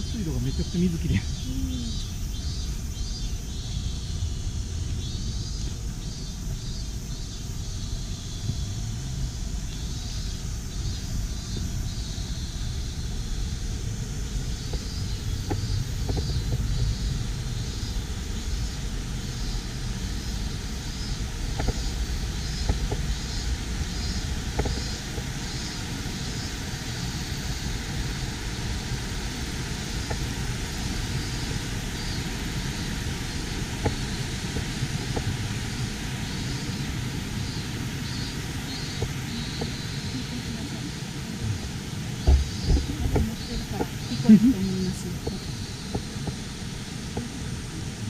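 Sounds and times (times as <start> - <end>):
running water rushing: 12.9 - 48.0
low rumble: 38.6 - 48.0.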